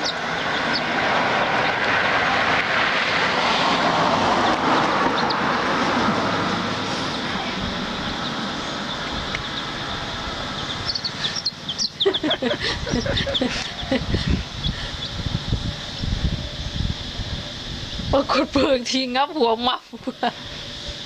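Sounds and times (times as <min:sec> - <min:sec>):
chicks peeping: 0:00.0 - 0:02.7, 0:03.7 - 0:06.0, 0:06.8 - 0:18.3
steady rushing noise: 0:00.0 - 0:19.7.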